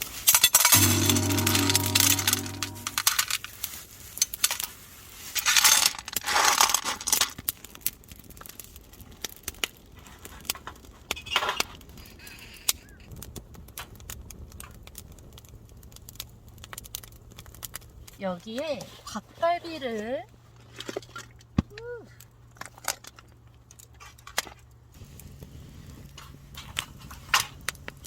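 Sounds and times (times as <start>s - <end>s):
frying pan clinking and clattering: 0.4s - 3.0s
campfire crackling and popping: 6.1s - 18.8s, 22.2s - 28.0s.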